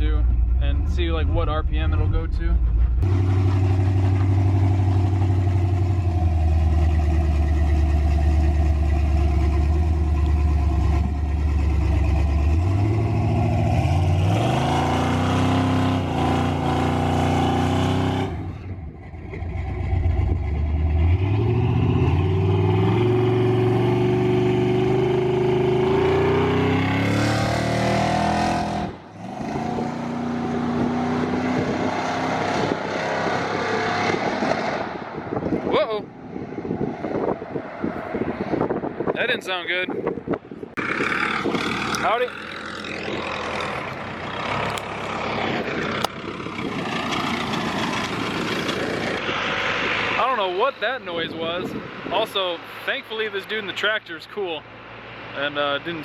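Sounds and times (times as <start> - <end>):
pickup truck engine revving: 0.0 - 35.0.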